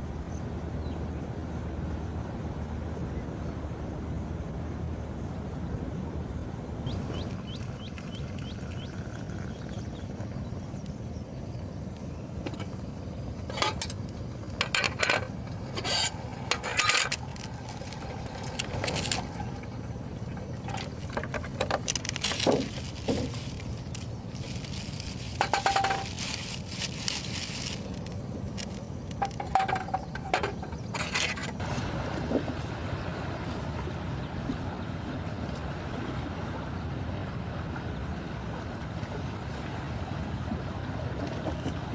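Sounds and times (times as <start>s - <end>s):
wind: 0.0s - 41.9s
surf rumbling: 12.3s - 41.9s
cookware and utensils clinking: 25.4s - 26.3s.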